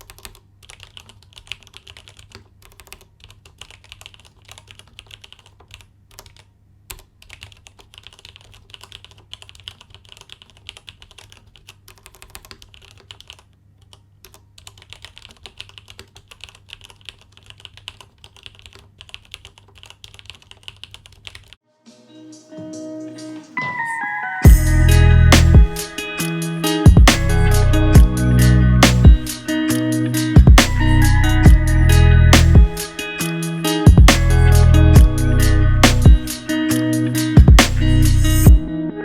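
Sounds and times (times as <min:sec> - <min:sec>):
mechanical keyboard typing: 0:00.0 - 0:21.6.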